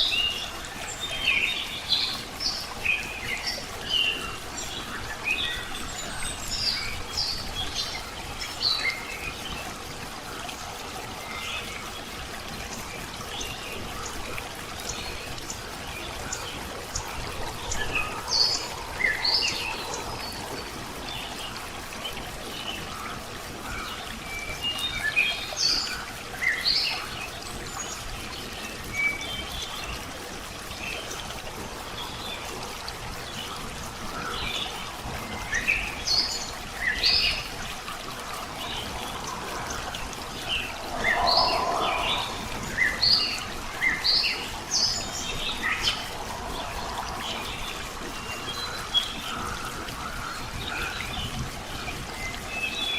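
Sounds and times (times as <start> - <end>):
steady background hiss: 0.0 - 52.9
birds chirping: 38.3 - 49.2
low-pitched bird call: 40.5 - 43.6.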